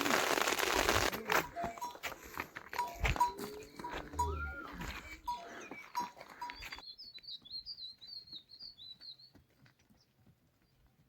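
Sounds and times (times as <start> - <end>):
songbird twittering: 2.8 - 9.3.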